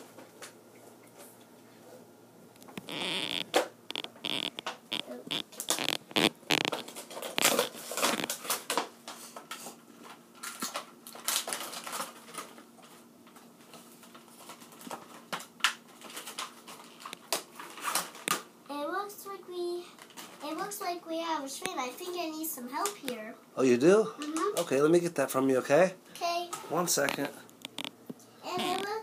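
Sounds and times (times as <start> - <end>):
packaging crinkling and rustling: 2.6 - 18.5, 19.9 - 20.8, 26.6 - 29.0.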